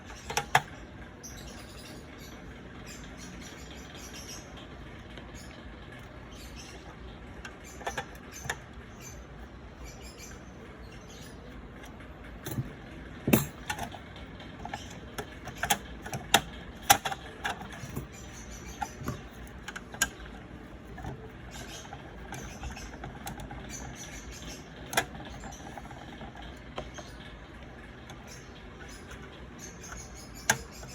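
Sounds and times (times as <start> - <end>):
clicks and knocks of small tools: 11.8 - 27.2.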